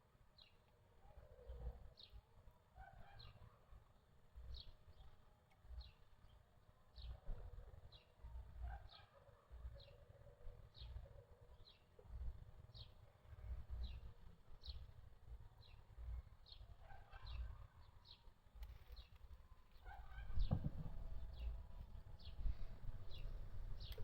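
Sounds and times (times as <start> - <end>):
small bird chirping: 15.6 - 24.0
low uneven rumble: 19.8 - 24.0
loud thump: 20.3 - 21.5.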